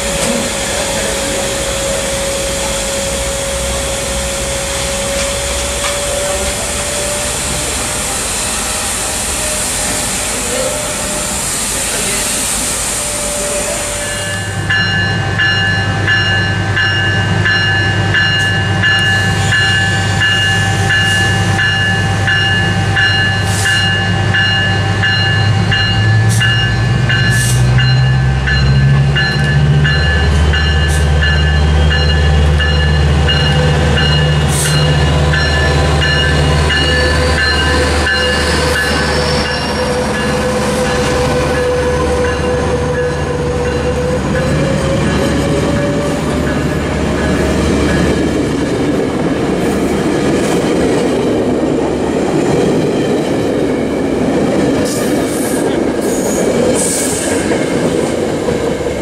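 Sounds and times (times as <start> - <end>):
diesel locomotive engine droning: 0.0 - 59.0
locomotive bell ringing: 13.4 - 48.5.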